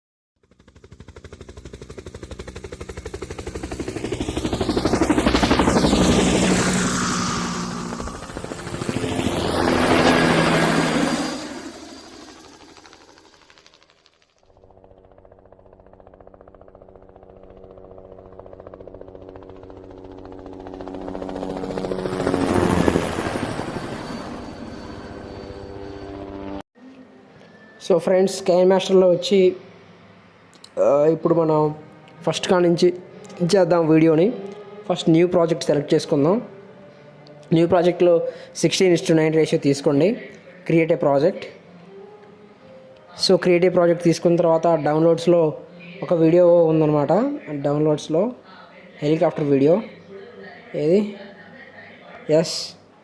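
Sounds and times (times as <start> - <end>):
helicopter rotor chop: 0.4 - 26.6.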